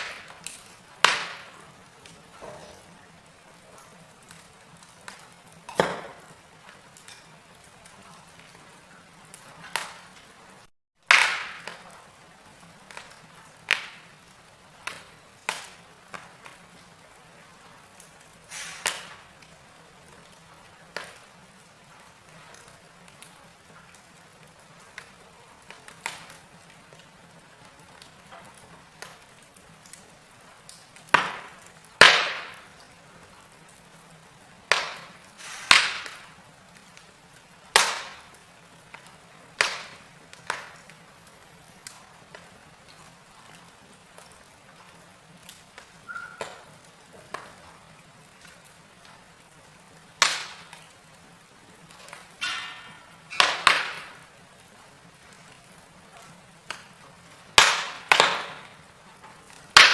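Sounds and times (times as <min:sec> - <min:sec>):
logs popping and snapping: 0:00.0 - 0:02.9, 0:03.8 - 0:08.6, 0:09.3 - 0:10.3, 0:11.0 - 0:12.0, 0:12.8 - 0:14.2, 0:14.8 - 0:16.6, 0:18.0 - 0:19.6, 0:30.7 - 0:32.9, 0:34.7 - 0:37.1, 0:37.7 - 0:41.0, 0:50.2 - 0:50.9, 0:51.9 - 0:54.4, 0:56.2 - 0:59.9
wood fire crackling: 0:00.0 - 0:59.9.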